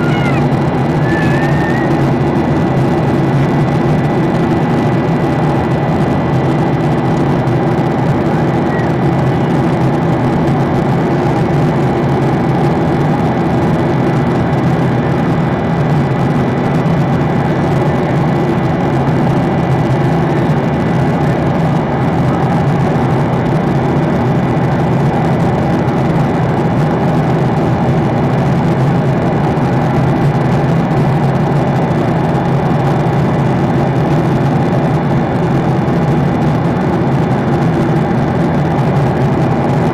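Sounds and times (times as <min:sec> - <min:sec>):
faint high tone: 0:00.0 - 0:02.0
airliner engine drone in cabin: 0:00.0 - 0:39.9.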